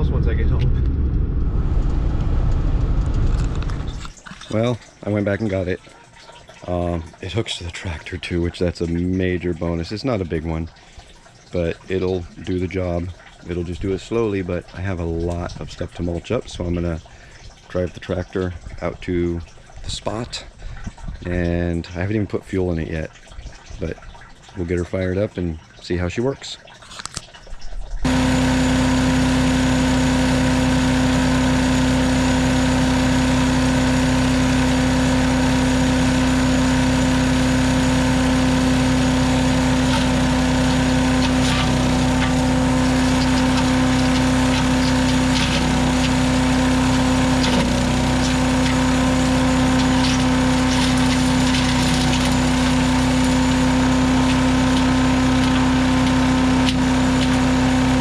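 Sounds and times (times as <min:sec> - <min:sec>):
small gasoline engine droning: 0:28.0 - 0:58.0.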